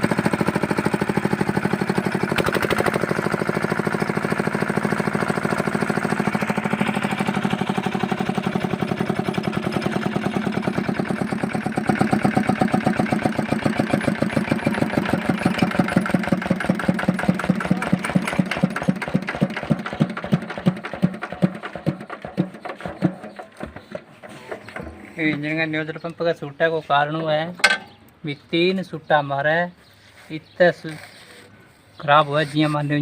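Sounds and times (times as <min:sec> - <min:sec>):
diesel engine beats: 0:00.0 - 0:26.1.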